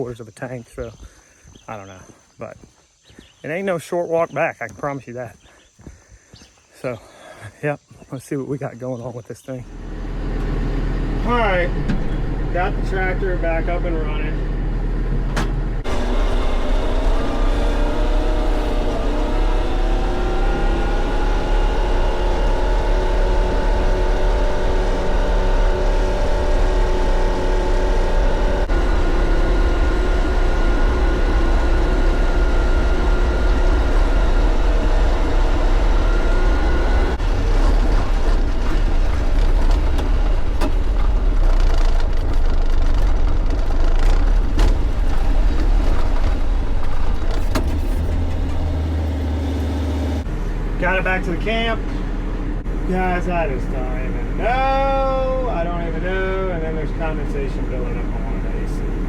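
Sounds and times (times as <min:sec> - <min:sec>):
diesel tractor engine running: 0:09.7 - 0:59.0.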